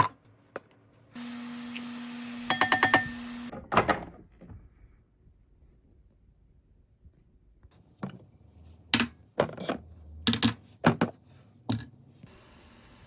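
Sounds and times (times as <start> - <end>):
kitchen knocks and clinks: 2.5 - 3.2.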